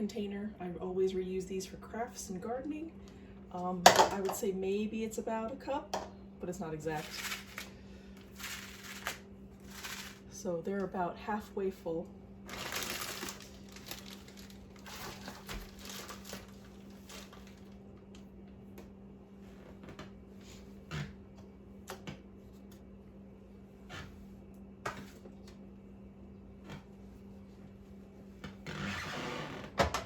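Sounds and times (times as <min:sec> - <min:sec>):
low steady hum: 0:00.0 - 0:30.0
birdseed rustling in containers: 0:07.0 - 0:07.7, 0:08.3 - 0:10.3, 0:12.5 - 0:17.6.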